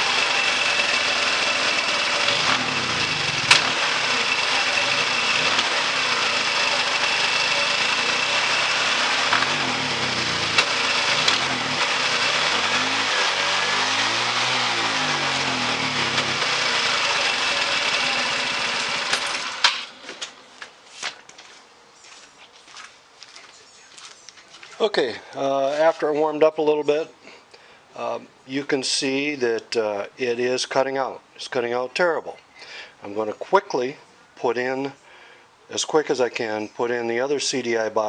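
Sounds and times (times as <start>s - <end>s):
scooter engine running: 0.0s - 20.0s
engine knocks: 1.2s - 13.0s.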